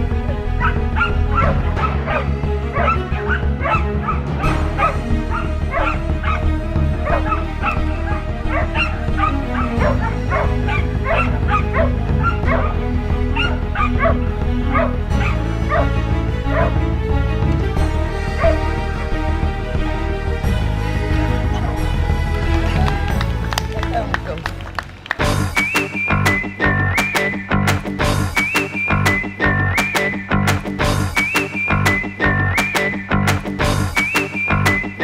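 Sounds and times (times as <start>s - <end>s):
music with bass line: 0.0s - 35.0s
dog yipping and barking: 0.6s - 2.2s, 2.8s - 4.2s, 4.8s - 6.4s, 7.0s - 12.7s, 13.4s - 14.2s.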